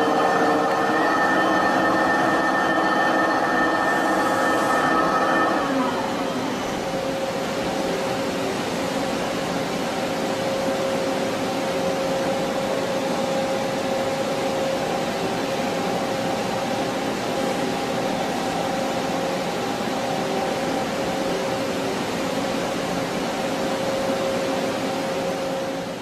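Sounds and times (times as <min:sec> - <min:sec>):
lathe running with whine: 0:00.0 - 0:08.2.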